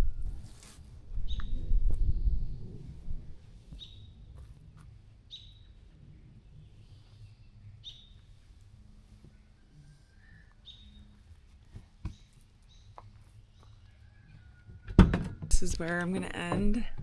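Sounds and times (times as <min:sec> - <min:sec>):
faint background noise: 0:00.0 - 0:17.0
bird chirping: 0:05.3 - 0:08.3, 0:09.3 - 0:11.2.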